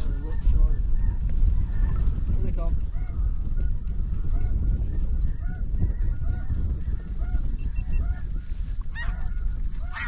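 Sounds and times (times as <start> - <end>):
geese honking: 8.9 - 10.0.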